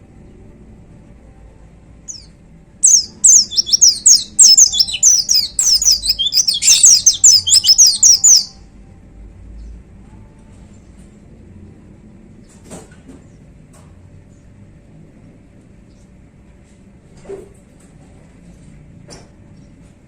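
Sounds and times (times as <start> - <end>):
small bird singing: 2.1 - 8.6.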